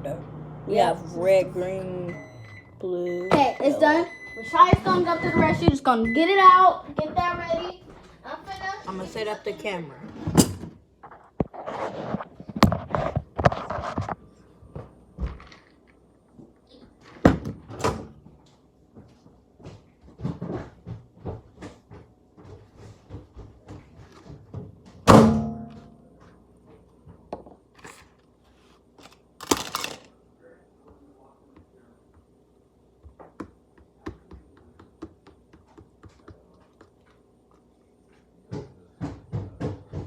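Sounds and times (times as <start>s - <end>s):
objects handled and set down: 27.1s - 30.1s.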